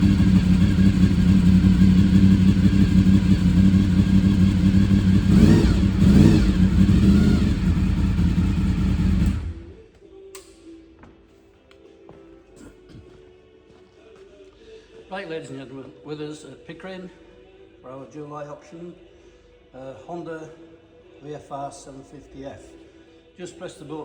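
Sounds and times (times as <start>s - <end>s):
motorcycle engine idling and revving: 0.0s - 9.8s.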